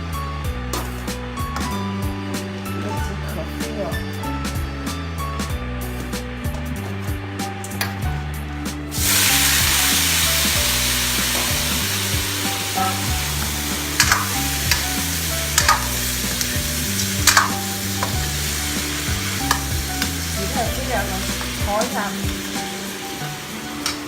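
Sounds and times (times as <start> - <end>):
chicken sizzling in hot oil: 8.9 - 24.0.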